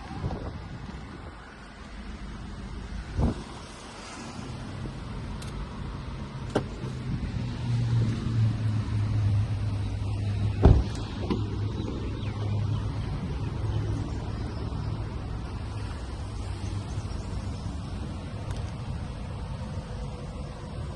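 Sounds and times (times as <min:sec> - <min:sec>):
car engine humming: 0:00.0 - 0:20.9
loud thump: 0:10.6 - 0:11.4.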